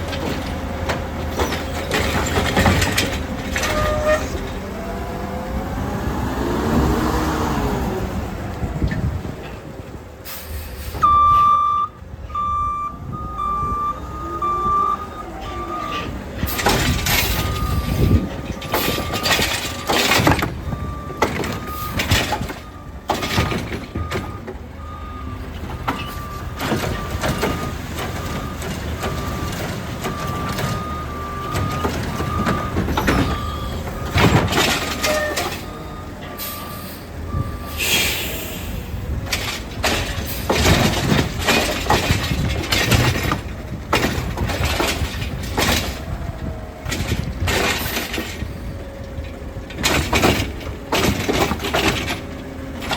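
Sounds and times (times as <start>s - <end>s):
bins clanking and crashing: 0.0s - 4.6s, 15.9s - 24.4s, 25.5s - 36.5s, 39.3s - 48.6s, 49.7s - 52.9s
garbage truck engine running: 0.0s - 10.9s, 13.0s - 52.9s
backup alarm beeping: 11.0s - 16.0s, 17.4s - 19.9s
hiss of air: 37.8s - 38.9s.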